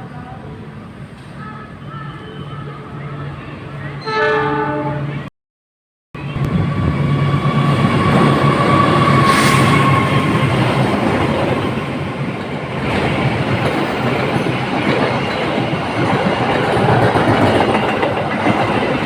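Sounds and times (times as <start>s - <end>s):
train wheels rumbling on rails: 6.2s - 19.0s.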